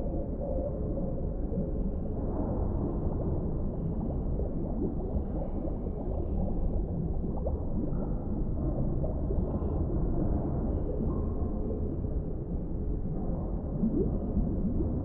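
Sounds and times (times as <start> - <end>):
bubbling and gurgling: 0.0 - 15.0
underwater rumble: 0.0 - 15.0.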